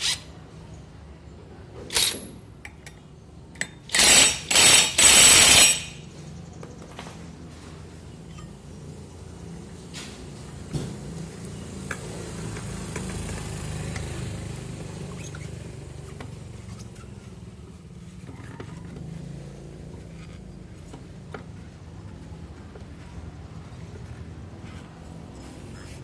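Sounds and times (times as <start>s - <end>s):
scooter engine running: 11.0s - 26.0s.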